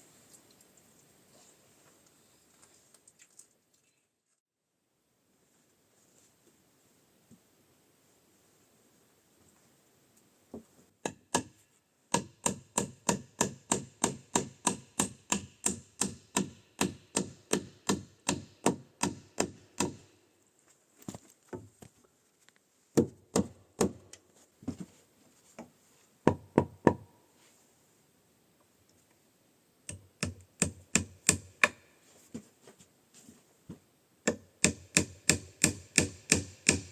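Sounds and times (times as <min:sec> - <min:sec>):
hammer driving nails into wood: 0:11.0 - 0:20.1, 0:29.9 - 0:31.9, 0:34.3 - 0:36.9.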